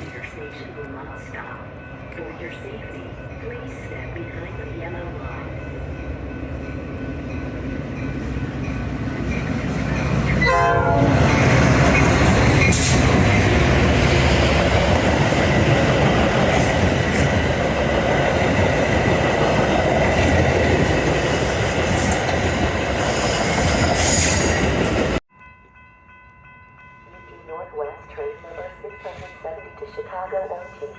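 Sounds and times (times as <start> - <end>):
train rumble and wheel clatter: 0.0 - 25.2, 26.1 - 30.9
train horn: 10.4 - 11.4.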